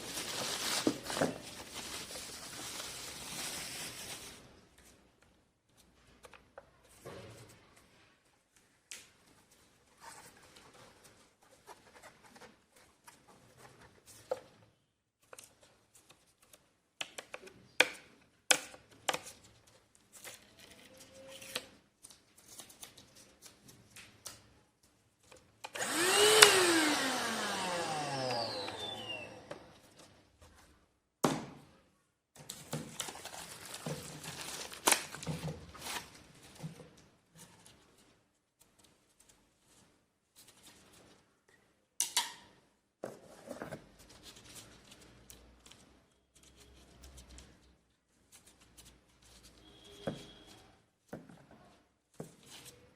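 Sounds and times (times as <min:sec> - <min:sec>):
handheld vacuum motor whining: 0:25.7 - 0:29.9.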